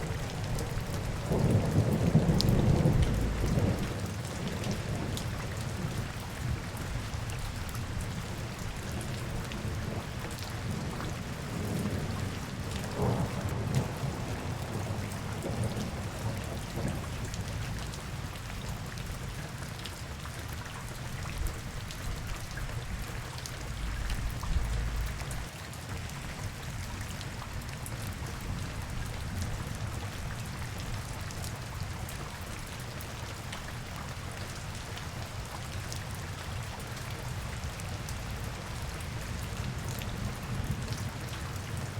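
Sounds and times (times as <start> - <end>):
rain on city street: 0.0 - 41.9
low rumble: 23.7 - 25.5.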